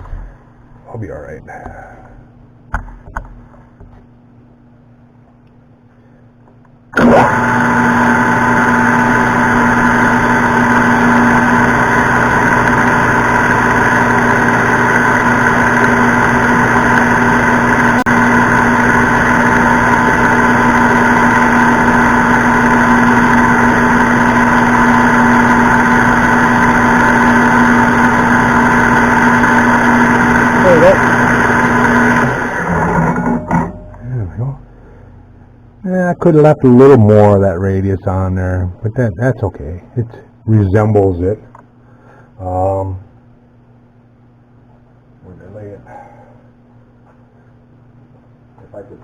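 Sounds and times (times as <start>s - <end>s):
metal lathe motor whine: 7.0s - 34.0s
blade cutting metal: 30.6s - 34.0s.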